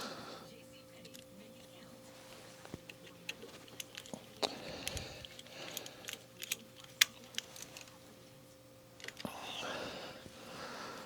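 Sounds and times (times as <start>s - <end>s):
faint steady hum: 0.0s - 11.0s
small metal parts clicking: 3.0s - 8.0s.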